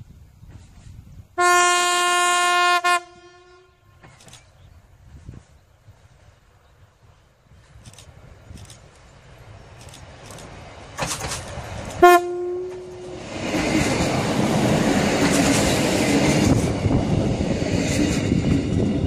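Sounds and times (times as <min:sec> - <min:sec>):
train wheels rumbling on rails: 0:00.0 - 0:01.4, 0:03.9 - 0:19.0
train horn blast: 0:01.4 - 0:04.1, 0:12.0 - 0:13.2.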